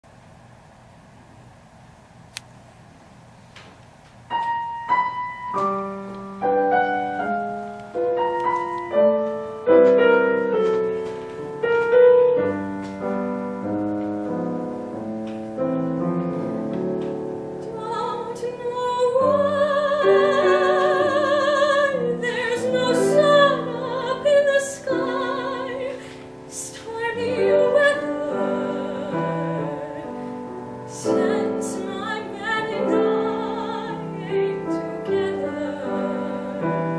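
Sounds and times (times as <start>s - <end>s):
piano playing: 4.2s - 36.9s
person singing with vibrato: 17.6s - 36.9s.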